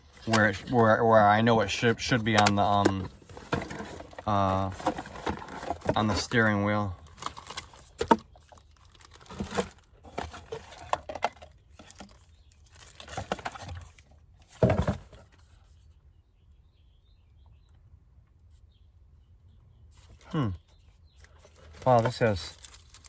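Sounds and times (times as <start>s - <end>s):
plastic packaging crinkling: 7.0s - 11.0s, 11.8s - 14.0s, 21.5s - 23.0s.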